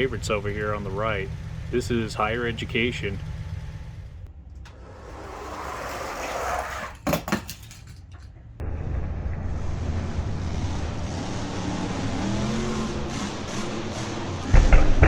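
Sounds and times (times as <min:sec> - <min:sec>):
toy wheels rolling on track: 0:04.6 - 0:08.3
toy trucks clattering clicks: 0:06.6 - 0:08.5.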